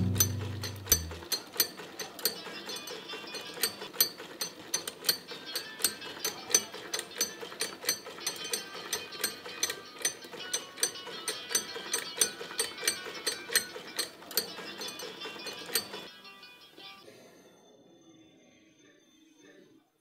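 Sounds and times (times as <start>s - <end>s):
fast ticking beat: 0.0s - 2.1s
light instrumental music: 0.0s - 17.0s.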